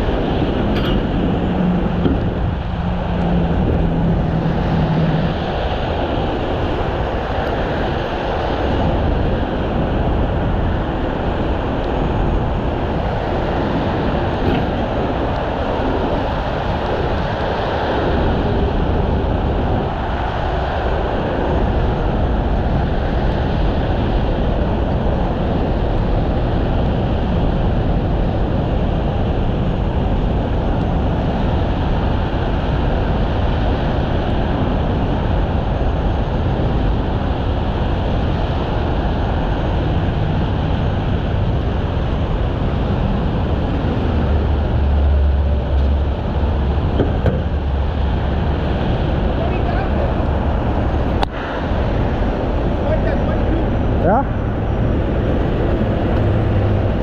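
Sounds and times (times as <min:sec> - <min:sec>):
heavy diesel engine running: 0:00.0 - 0:21.6, 0:38.4 - 0:57.0
continuous rushing noise: 0:00.0 - 0:57.0.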